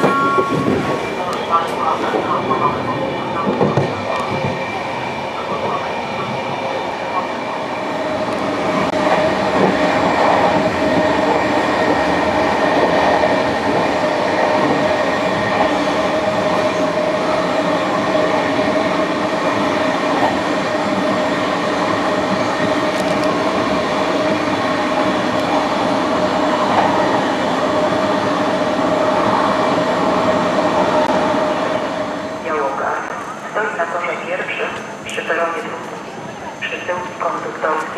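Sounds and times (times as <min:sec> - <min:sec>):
train wheels rumbling on rails: 0:00.0 - 0:33.3.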